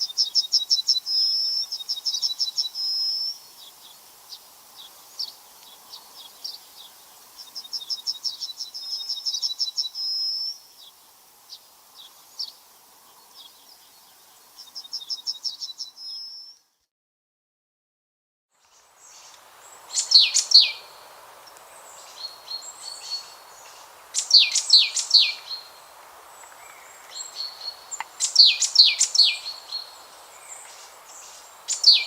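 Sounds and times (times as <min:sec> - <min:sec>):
faint background hiss: 0:00.0 - 0:16.8, 0:18.5 - 0:32.0
songbird singing: 0:00.0 - 0:16.9, 0:18.6 - 0:32.0
bird chirps: 0:18.6 - 0:21.0, 0:21.7 - 0:25.8, 0:26.4 - 0:32.0.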